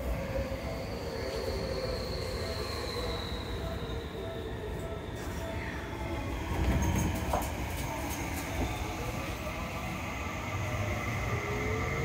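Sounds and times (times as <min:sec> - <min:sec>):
train running rumble: 0:04.6 - 0:12.0.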